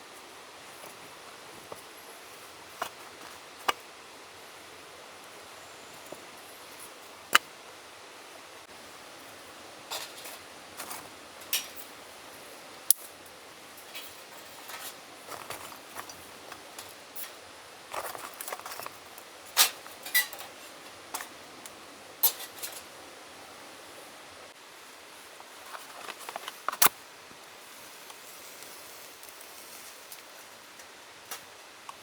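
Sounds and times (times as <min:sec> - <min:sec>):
steady background hiss: 0:00.0 - 0:32.0
camping gear clinking and knocking: 0:00.7 - 0:03.9, 0:13.8 - 0:21.4.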